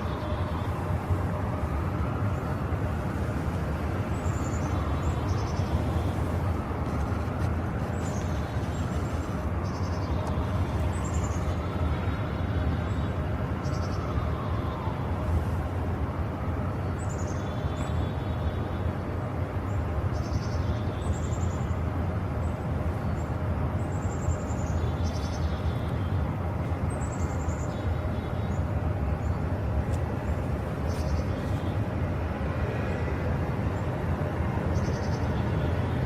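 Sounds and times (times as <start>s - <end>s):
small birds chirping: 4.0s - 12.1s, 19.6s - 21.8s, 22.4s - 32.0s, 34.7s - 36.0s.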